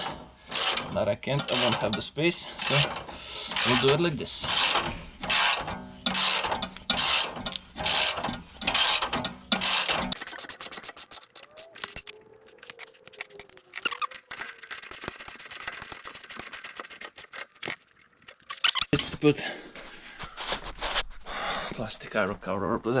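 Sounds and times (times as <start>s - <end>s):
ratchet wrench clicking: 0.5s - 0.9s, 4.5s - 18.9s.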